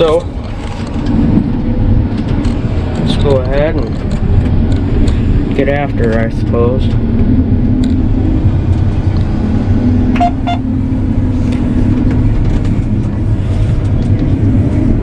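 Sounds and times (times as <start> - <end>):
combine harvester engine rumbling: 0.0 - 15.0
short beeps: 10.2 - 10.7.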